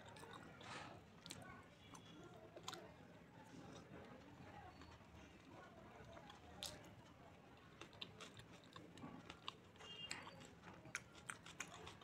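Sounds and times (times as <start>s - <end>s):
person chewing with mouth clicks: 7.8s - 12.0s.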